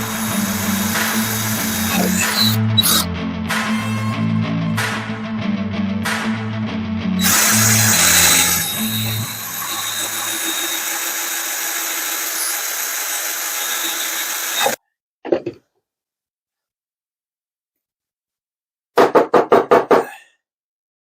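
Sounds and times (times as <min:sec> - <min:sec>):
electric drill running under load: 0:00.0 - 0:03.0, 0:07.2 - 0:14.8.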